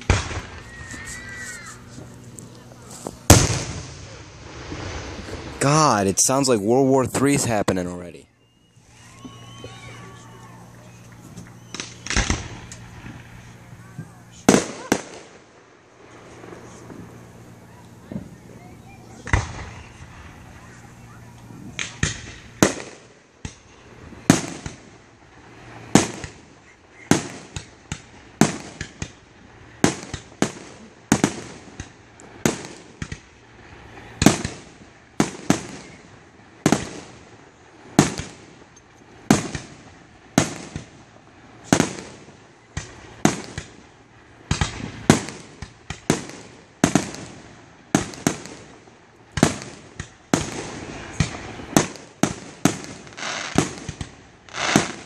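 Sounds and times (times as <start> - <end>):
firework shells bursting: 0.0 - 7.6, 8.4 - 18.5, 19.2 - 29.2, 41.6 - 55.0.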